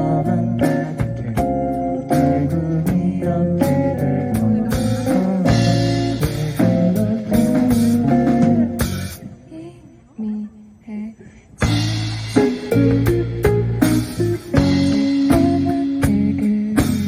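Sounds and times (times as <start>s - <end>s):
drum kit beat: 0.0s - 9.3s, 11.6s - 17.0s
electric guitar: 0.0s - 9.5s, 11.6s - 17.0s
bass guitar: 0.0s - 10.0s, 11.6s - 17.0s.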